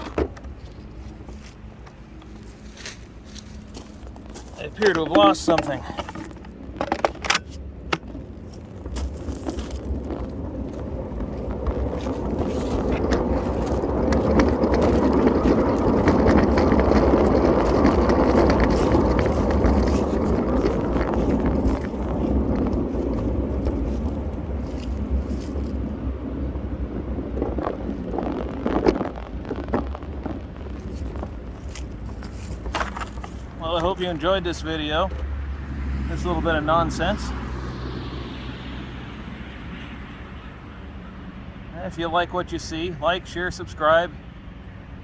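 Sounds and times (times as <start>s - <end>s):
leaf blowers rushing: 0.0s - 26.0s.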